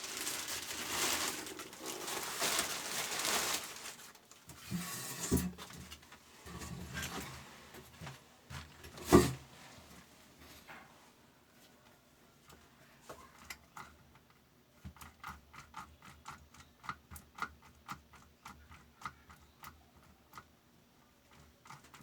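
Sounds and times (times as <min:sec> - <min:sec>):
rustling: 0:00.0 - 0:10.9.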